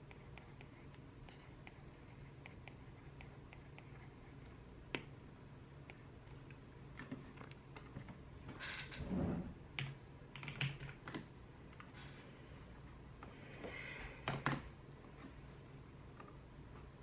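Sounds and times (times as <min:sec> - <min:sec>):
typing on computer keyboard: 0:09.8 - 0:11.9.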